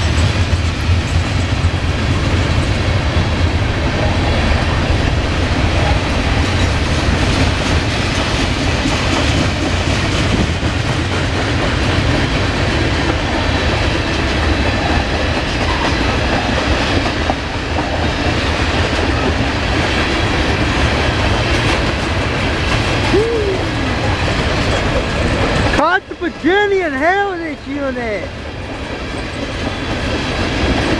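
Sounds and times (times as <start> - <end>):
freight train rumbling past: 0.0 - 30.9
wheels clacking over rail joints: 4.5 - 23.1, 23.7 - 27.0, 28.3 - 30.9.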